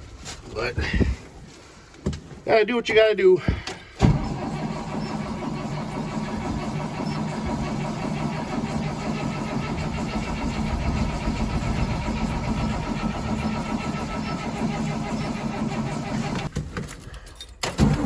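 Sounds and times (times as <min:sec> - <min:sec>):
diesel engine cranking: 0:04.0 - 0:16.5, 0:17.6 - 0:18.0.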